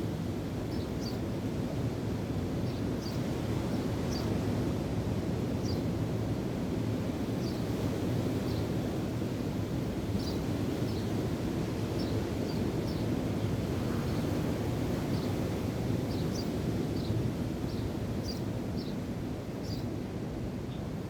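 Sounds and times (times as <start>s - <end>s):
wind: 0.0s - 21.0s.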